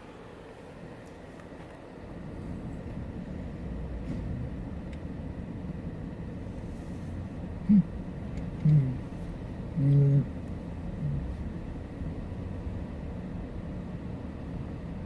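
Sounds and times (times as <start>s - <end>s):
person humming: 7.6s - 8.0s, 8.6s - 9.1s, 9.7s - 11.4s.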